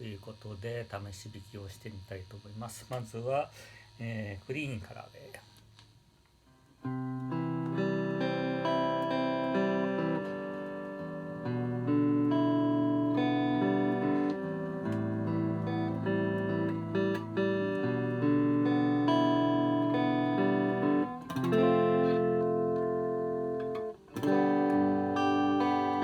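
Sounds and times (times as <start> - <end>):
clean electric guitar chords: 6.8 - 26.0.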